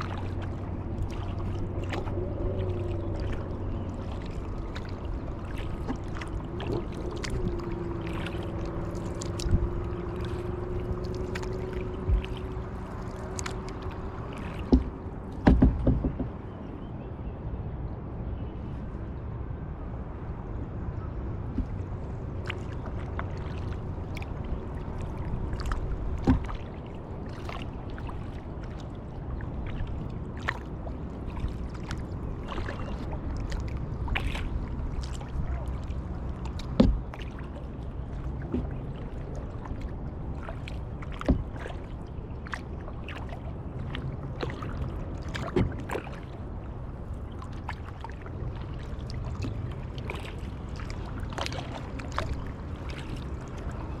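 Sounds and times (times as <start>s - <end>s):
paddle splashing in water: 0.0s - 16.6s, 21.4s - 54.0s
paddle knocks: 4.8s - 16.6s, 25.5s - 26.6s, 36.4s - 37.4s, 41.0s - 41.8s, 42.4s - 46.2s.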